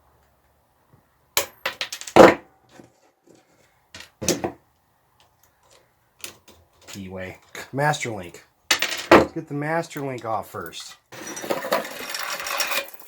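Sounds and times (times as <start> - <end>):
metal tools clinking and clattering: 10.0 - 13.0.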